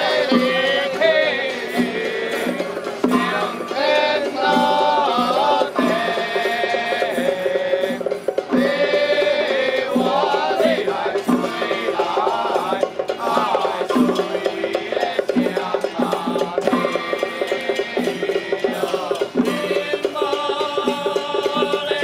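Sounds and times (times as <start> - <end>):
percussion beats: 0.0 - 22.0.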